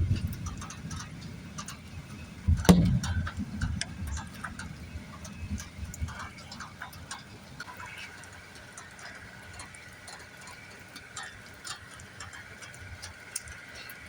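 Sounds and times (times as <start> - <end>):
low rumble of thunder: 0.0 - 7.6
light rain ticks: 0.0 - 14.0
sharp thunder crack: 2.5 - 4.2.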